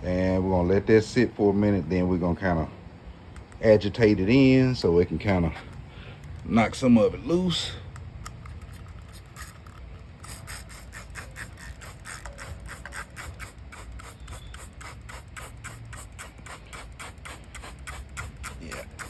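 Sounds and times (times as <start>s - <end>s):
spray bottle spraying: 8.4s - 19.0s.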